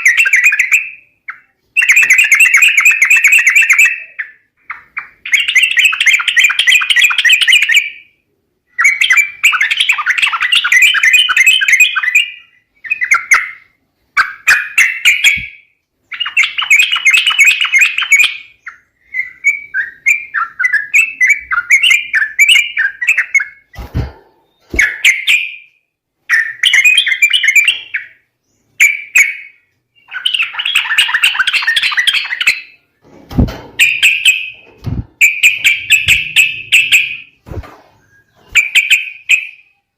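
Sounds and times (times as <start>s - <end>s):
bubbly chattering bird calls: 30.0s - 32.8s.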